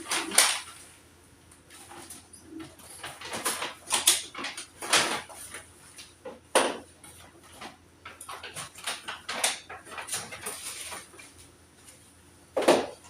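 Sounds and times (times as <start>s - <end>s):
hard objects clattering and knocking: 1.8s - 5.6s, 6.2s - 11.1s, 12.6s - 13.0s.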